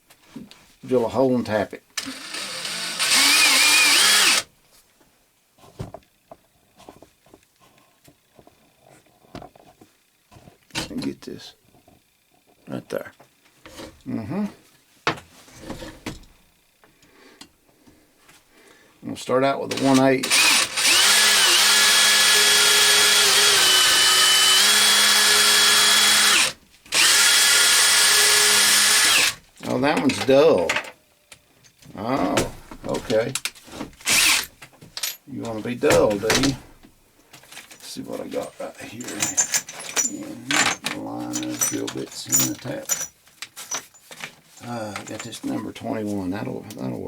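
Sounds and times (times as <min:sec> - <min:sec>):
electric drill whining: 0:02.0 - 0:04.5, 0:20.2 - 0:29.4, 0:34.0 - 0:34.5.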